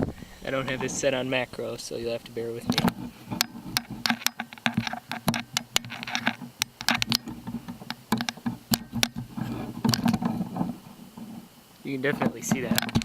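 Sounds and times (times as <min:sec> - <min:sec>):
handling clicks and rustles: 0:00.0 - 0:13.0.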